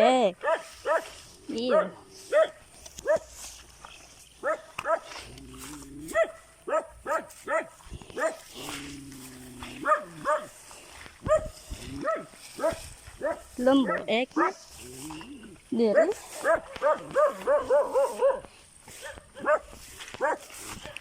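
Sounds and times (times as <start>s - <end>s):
dog barking in sharp yelps: 0.4s - 1.1s, 1.7s - 3.3s, 4.4s - 5.1s, 6.1s - 8.4s, 11.3s - 14.6s, 16.0s - 18.4s, 19.0s - 20.4s.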